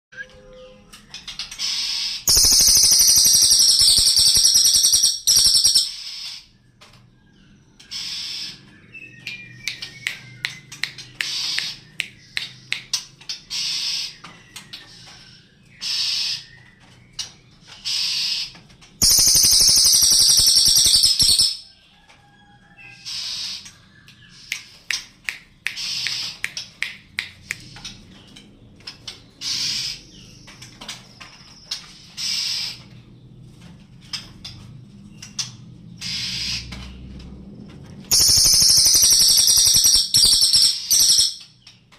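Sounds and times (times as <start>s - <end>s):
bird high chirps: 0.1s - 6.6s, 7.2s - 30.8s, 38.1s - 41.8s
bird harsh rattling call: 1.1s - 6.5s, 7.8s - 8.6s, 13.0s - 14.3s, 14.9s - 16.6s, 17.2s - 21.7s, 25.8s - 26.8s, 29.0s - 30.4s, 31.1s - 32.9s, 36.0s - 36.7s, 38.1s - 41.6s.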